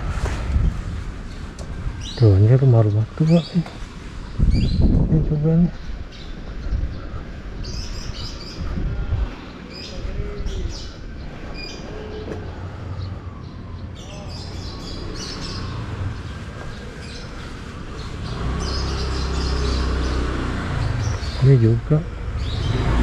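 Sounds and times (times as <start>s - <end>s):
birds chirping: 1.2s - 23.0s
steady low rumble: 3.8s - 11.6s.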